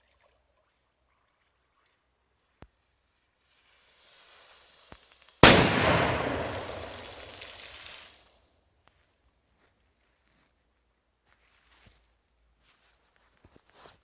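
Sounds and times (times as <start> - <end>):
firecracker fuse hissing: 3.4 - 8.3
firecracker bang with echo: 5.4 - 7.8.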